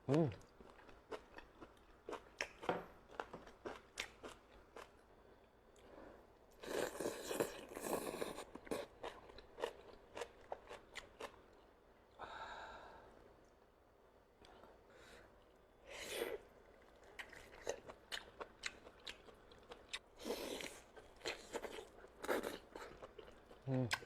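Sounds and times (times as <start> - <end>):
chewing and crunching: 0.3 - 5.0, 6.7 - 11.7, 16.7 - 24.0.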